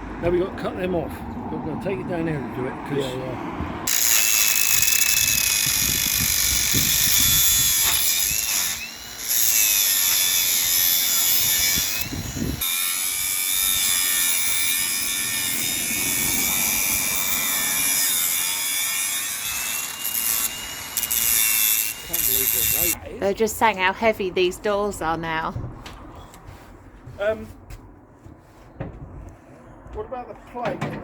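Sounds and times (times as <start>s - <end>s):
power tool motor whining: 3.9s - 23.0s.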